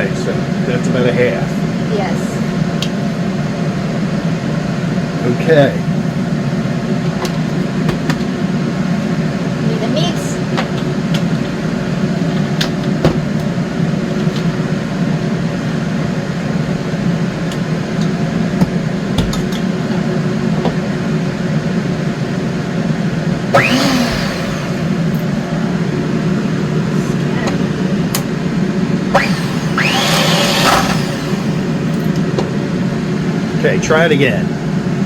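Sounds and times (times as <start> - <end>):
electric mixer motor running: 23.5 - 25.8, 29.1 - 32.1.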